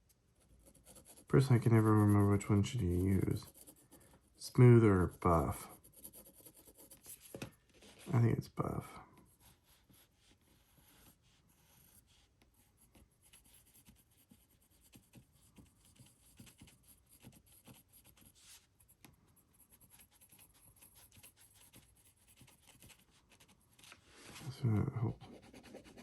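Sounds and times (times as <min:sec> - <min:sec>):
fountain pen nib scratching: 0:00.6 - 0:04.2, 0:05.0 - 0:07.4, 0:09.6 - 0:23.9.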